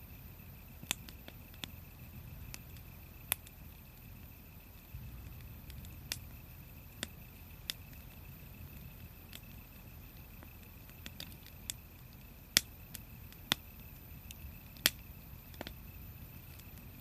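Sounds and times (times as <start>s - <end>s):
low rumble of fire: 0.0s - 17.0s
wood fire crackling and popping: 0.0s - 17.0s.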